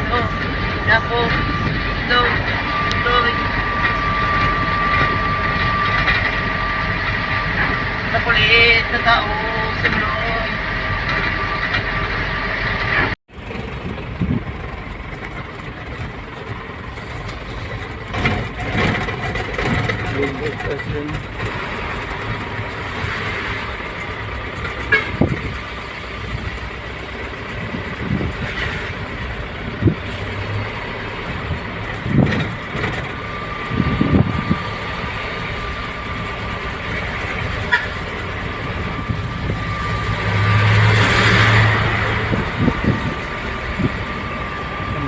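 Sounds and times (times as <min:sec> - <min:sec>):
truck driving on road: 0:00.0 - 0:45.0.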